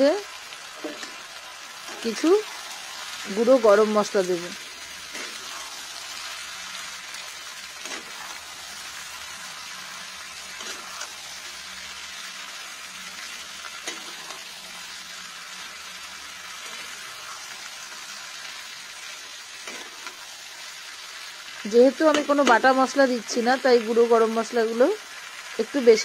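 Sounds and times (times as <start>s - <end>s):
food sizzling in hot oil: 0.0s - 26.0s
spatula scraping pan: 0.8s - 2.6s, 5.0s - 6.3s, 7.7s - 8.8s, 10.4s - 11.3s, 19.6s - 20.2s.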